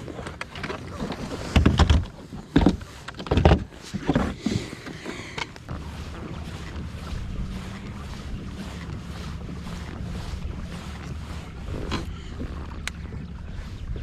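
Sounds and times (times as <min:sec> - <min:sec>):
heavy thumps in kayak: 0:01.1 - 0:08.9.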